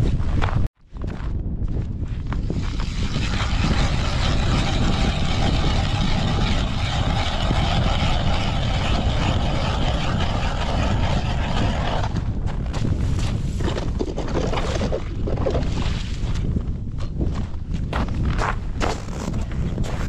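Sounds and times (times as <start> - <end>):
wind noise on microphone: 0.0 - 20.0
mechanical drone: 2.2 - 12.6.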